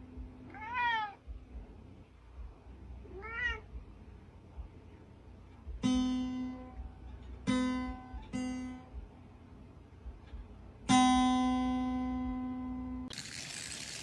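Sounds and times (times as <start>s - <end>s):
cat meowing: 0.5s - 1.2s, 3.1s - 3.7s.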